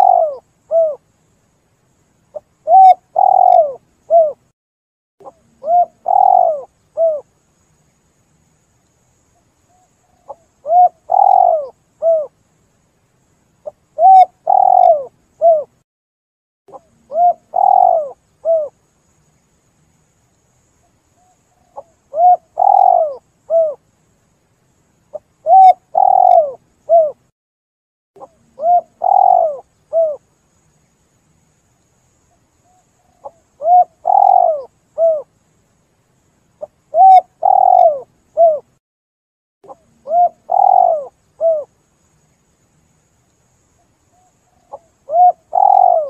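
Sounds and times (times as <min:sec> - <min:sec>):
dove cooing: 0:00.0 - 0:01.0, 0:02.3 - 0:04.4, 0:05.2 - 0:07.3, 0:09.7 - 0:12.3, 0:13.6 - 0:15.7, 0:16.7 - 0:18.8, 0:21.5 - 0:23.8, 0:25.4 - 0:27.2, 0:28.2 - 0:30.2, 0:32.7 - 0:35.3, 0:36.6 - 0:38.7, 0:39.7 - 0:41.7, 0:44.2 - 0:46.0.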